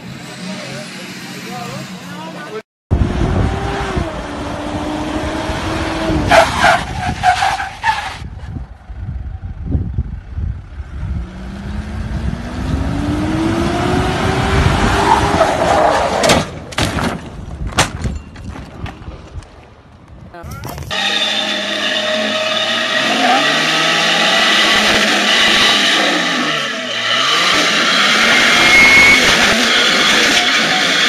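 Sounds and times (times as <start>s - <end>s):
car engine revving: 2.9s - 6.7s, 10.6s - 16.1s, 20.9s - 31.0s.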